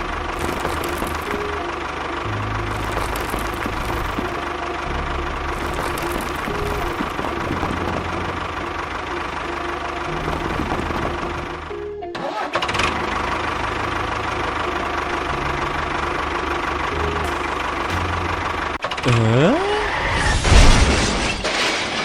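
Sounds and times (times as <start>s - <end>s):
background music: 0.0s - 19.6s
small engine running: 0.0s - 20.2s.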